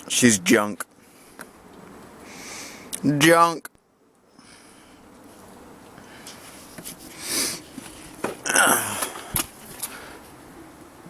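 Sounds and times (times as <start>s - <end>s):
person exhaling breathily: 8.5s - 10.2s.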